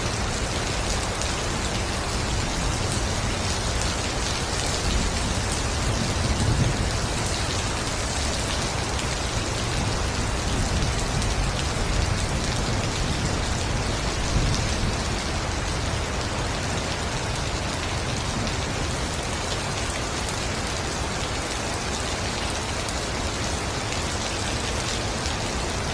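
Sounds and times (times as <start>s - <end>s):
heavy rain on foliage: 0.0s - 25.9s.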